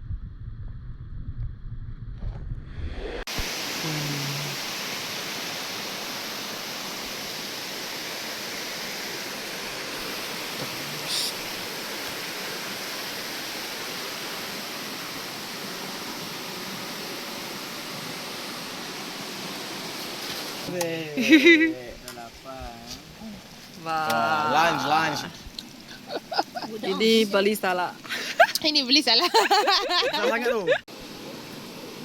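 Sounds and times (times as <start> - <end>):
flowing water rushing: 3.3 - 32.0.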